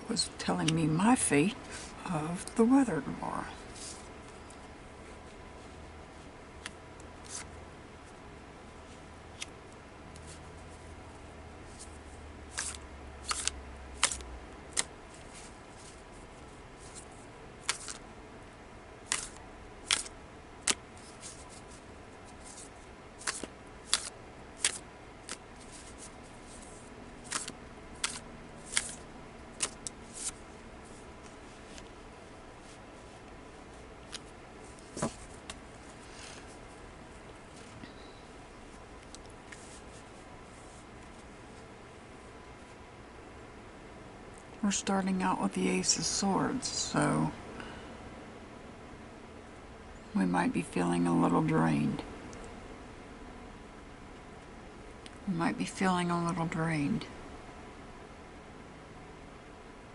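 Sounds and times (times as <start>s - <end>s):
cards snapping and tapping: 12.6s - 14.9s, 17.6s - 18.0s, 19.1s - 20.8s, 23.2s - 25.4s, 27.2s - 29.0s, 29.6s - 30.3s.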